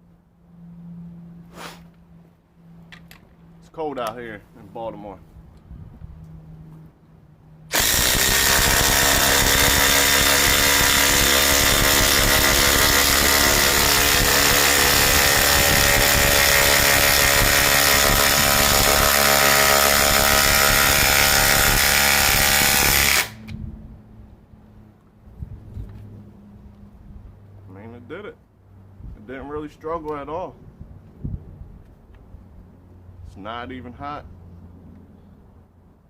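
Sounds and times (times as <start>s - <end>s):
impact driver hammering screw: 7.7s - 23.4s.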